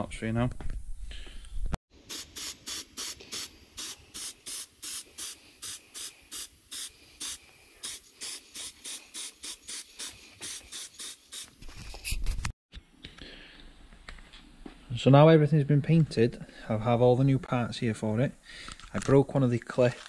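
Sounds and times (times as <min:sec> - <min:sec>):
spray paint can hissing: 0:02.0 - 0:11.6.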